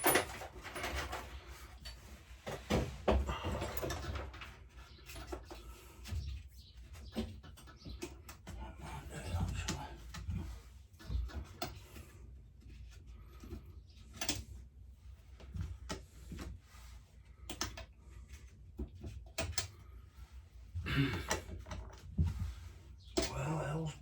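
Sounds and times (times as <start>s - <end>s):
tools and parts clicking: 0.0s - 2.0s, 19.2s - 19.8s, 23.0s - 23.4s.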